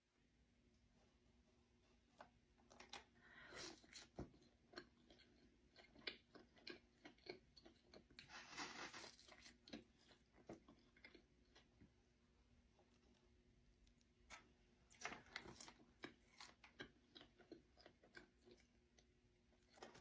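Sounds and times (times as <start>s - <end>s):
person chewing crunchy food: 2.2s - 12.0s, 13.9s - 20.0s.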